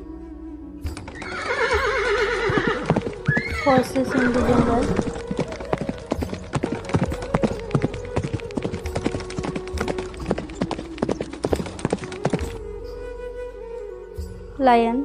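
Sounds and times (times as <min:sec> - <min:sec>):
flute-like melody: 0:00.0 - 0:14.6
soft background music: 0:00.0 - 0:15.0
horse hooves clip-clopping: 0:00.9 - 0:12.6.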